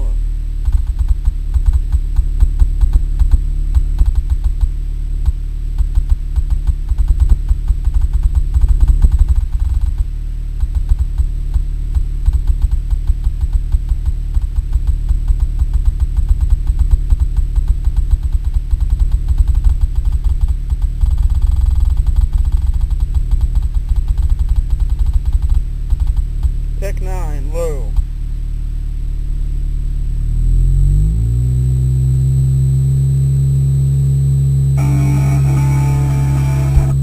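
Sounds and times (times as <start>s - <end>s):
bass-heavy music through subwoofers: 34.8s - 37.0s.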